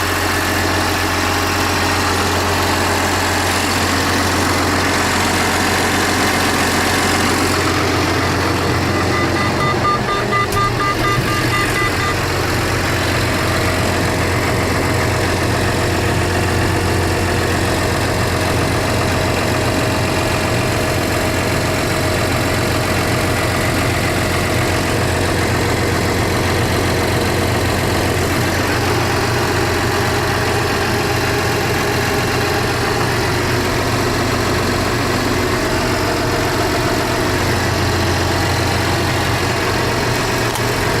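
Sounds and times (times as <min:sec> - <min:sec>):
tractor diesel engine running: 0:00.0 - 0:41.0
high beeps: 0:08.0 - 0:12.4.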